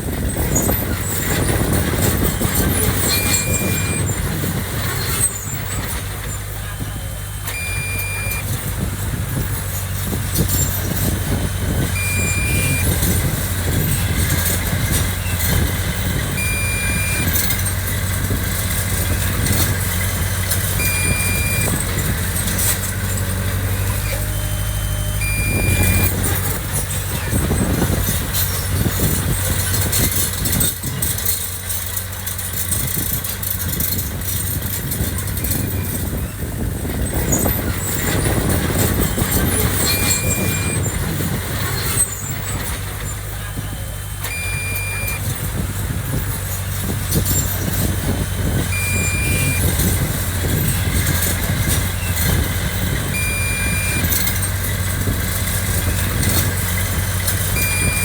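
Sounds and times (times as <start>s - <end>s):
heavy machinery diesel engine running: 0.0s - 58.0s
short single-tone alarm beep: 3.0s - 4.1s, 7.4s - 8.5s, 12.0s - 13.0s, 16.3s - 17.6s, 20.8s - 21.8s, 24.0s - 26.2s, 39.8s - 40.8s, 44.2s - 45.3s, 48.7s - 49.8s, 53.2s - 54.3s, 57.6s - 58.0s.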